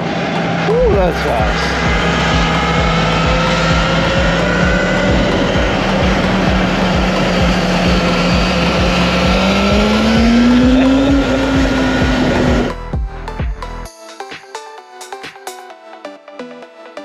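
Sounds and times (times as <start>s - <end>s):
electric motor whine: 0.0s - 12.8s
wind rushing over microphone: 0.0s - 12.8s.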